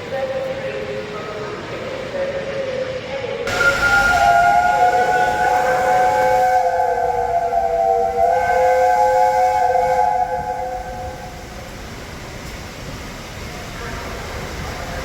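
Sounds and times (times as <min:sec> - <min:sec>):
steam locomotive whistle: 0:03.5 - 0:11.6.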